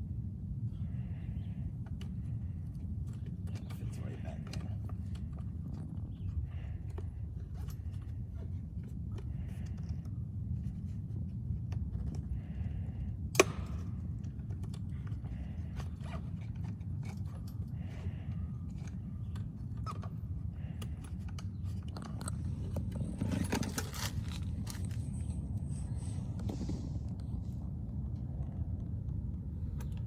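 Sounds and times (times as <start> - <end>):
steady low rumble: 0.0 - 30.0
plastic clicks and scrapes: 20.8 - 25.3.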